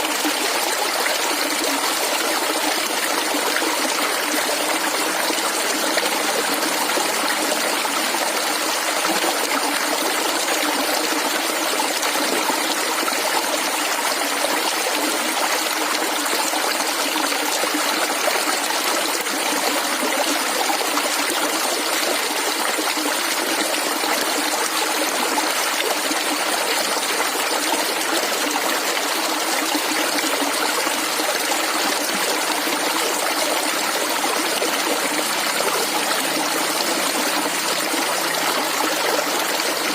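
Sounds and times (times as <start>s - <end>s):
stream water gurgling: 0.0s - 39.9s.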